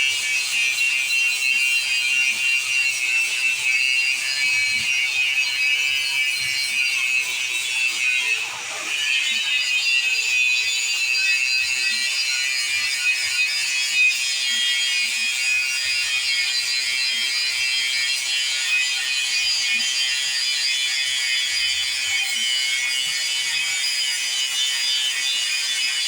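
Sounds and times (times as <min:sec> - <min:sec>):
grinder grinding steel: 0:00.0 - 0:26.0.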